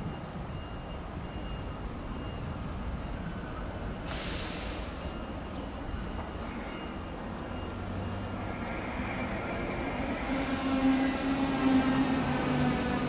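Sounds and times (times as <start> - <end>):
train rumbling slowly: 0.0 - 13.0
air hiss: 4.0 - 5.1.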